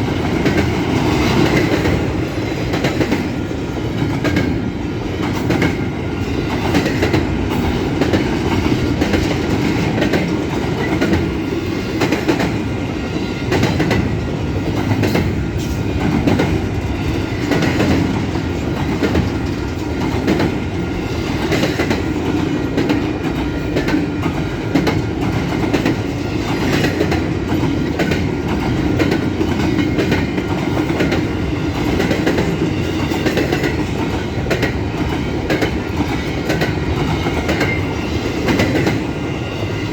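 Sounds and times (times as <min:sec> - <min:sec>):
freight train rumbling past: 0:00.0 - 0:39.9
wheels clicking over rail joints: 0:13.5 - 0:39.1.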